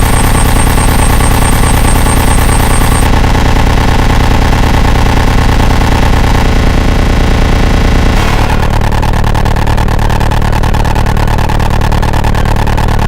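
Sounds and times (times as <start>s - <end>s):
electronic noise music: 8.0s - 9.6s.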